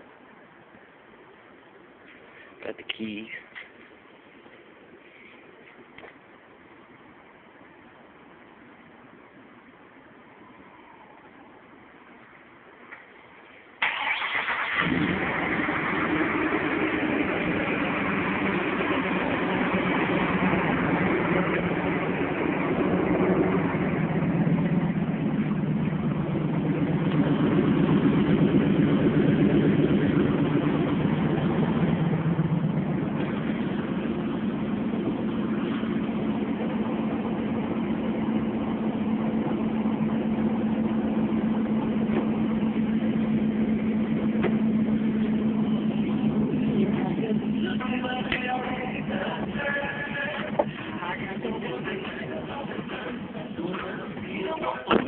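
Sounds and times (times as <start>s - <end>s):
truck engine idling: 13.8s - 55.0s.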